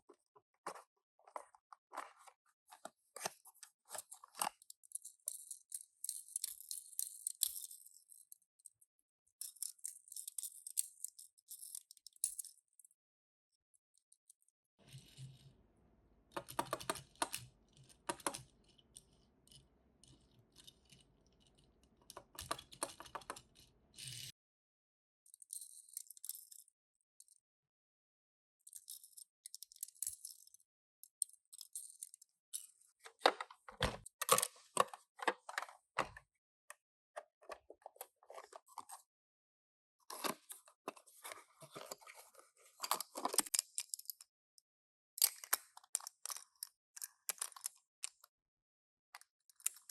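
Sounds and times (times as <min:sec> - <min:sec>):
toy cars clicking and rattling: 0:03.9 - 0:08.5, 0:16.3 - 0:24.3.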